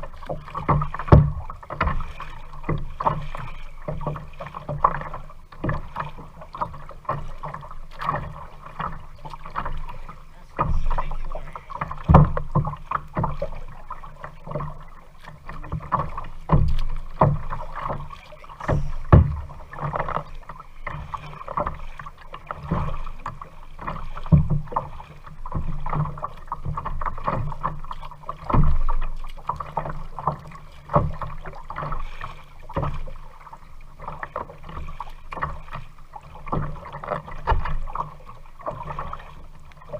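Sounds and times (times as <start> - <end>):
paddle strokes in water: 0.0 - 39.9
knocks and thumps: 0.6 - 2.0, 11.8 - 13.4, 18.6 - 20.2.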